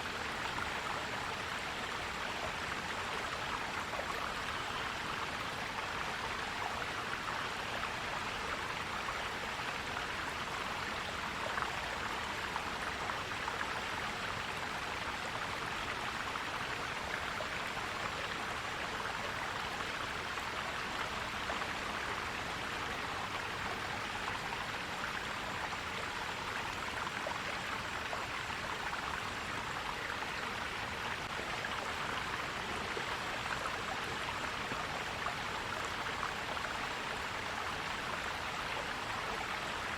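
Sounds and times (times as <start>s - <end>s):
stream flowing and gurgling: 0.0s - 39.9s.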